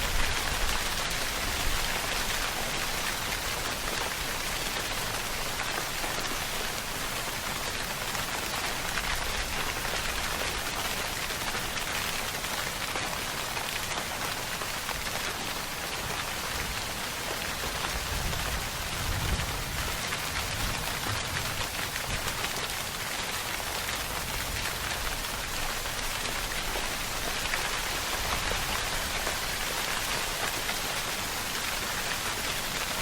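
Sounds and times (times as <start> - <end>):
steady rainfall: 0.0 - 33.0.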